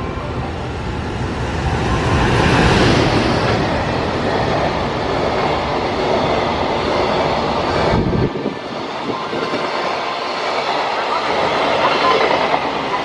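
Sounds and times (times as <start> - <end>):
freight train rumble: 0.0 - 13.0.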